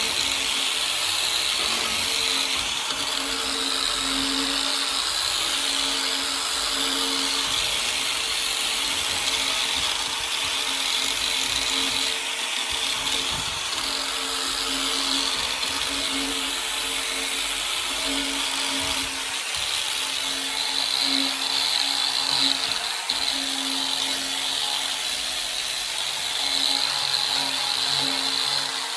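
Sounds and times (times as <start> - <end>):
power tool motor humming: 0.0 - 28.9
sanding wheel grinding metal: 0.0 - 28.9.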